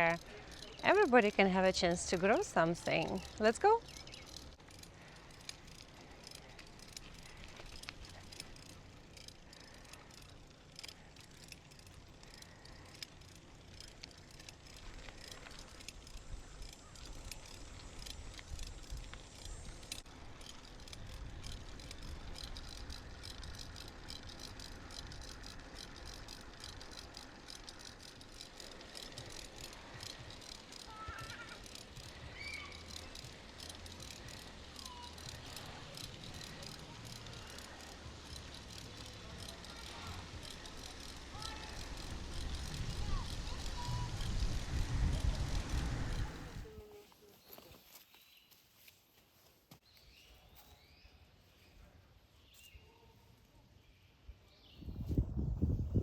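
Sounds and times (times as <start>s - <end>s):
bicycle frame and chain rattling: 0.0s - 47.0s
low uneven rumble: 31.8s - 47.0s.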